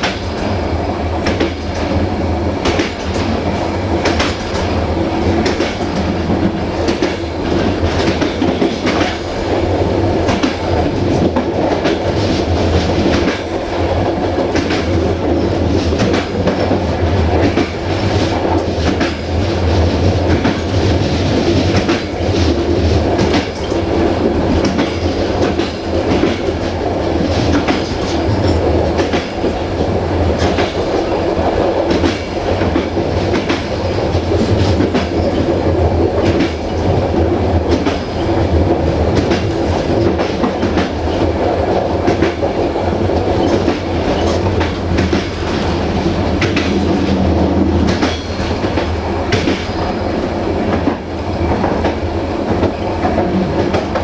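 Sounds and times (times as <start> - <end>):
train rumble with low hum: 0.0 - 54.0
wheels clacking over rail joints: 2.6 - 9.6, 31.8 - 41.4, 42.0 - 50.0.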